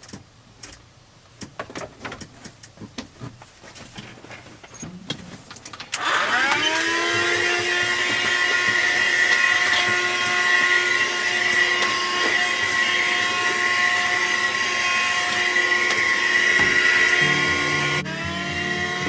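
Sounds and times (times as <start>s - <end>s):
vacuum cleaner motor whine: 6.0s - 19.0s.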